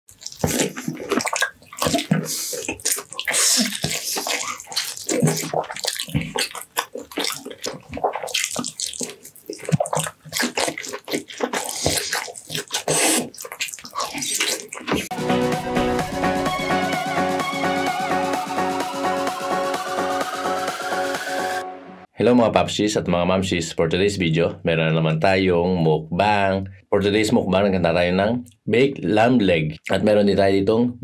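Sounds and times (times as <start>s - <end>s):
wet chewing and lip-smacking: 0.1s - 15.1s.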